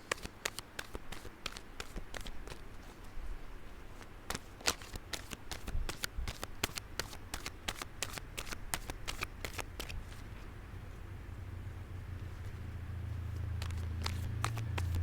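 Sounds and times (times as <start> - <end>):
cards being shuffled: 0.0 - 3.2, 3.9 - 10.3, 13.2 - 15.0.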